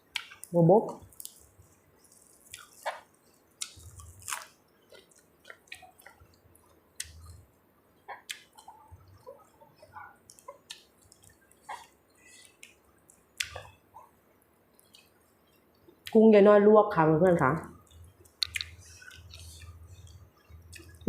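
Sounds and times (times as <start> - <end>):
mouth clicks and smacks: 0.0 - 7.4, 8.0 - 14.1, 14.7 - 16.2, 17.7 - 21.0
person chewing wetly: 0.0 - 16.1, 17.7 - 21.0.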